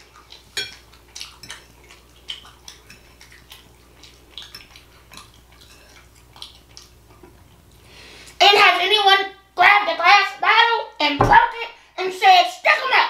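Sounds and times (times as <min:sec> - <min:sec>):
wet chewing and lip-smacking: 0:00.0 - 0:08.4
cutlery clinking on dish: 0:00.6 - 0:01.6.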